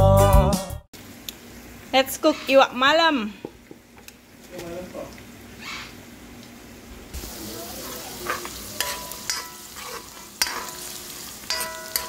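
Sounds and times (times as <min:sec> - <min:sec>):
vegetables sizzling in hot oil: 0:01.0 - 0:12.0
metal spoon scraping a pan: 0:07.8 - 0:12.0.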